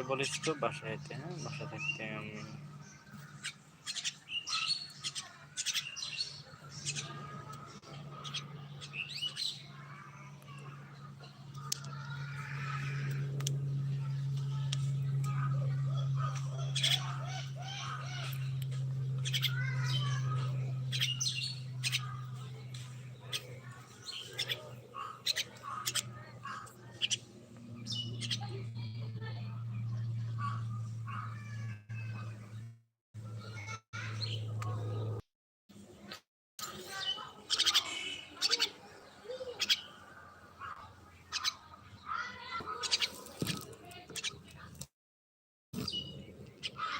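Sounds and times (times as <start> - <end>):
birds clicking and chattering: 0.0 - 35.2, 35.9 - 44.9, 45.8 - 46.9
steady low hum: 0.0 - 35.2
birds warbled whistles: 0.2 - 10.3, 15.0 - 29.0.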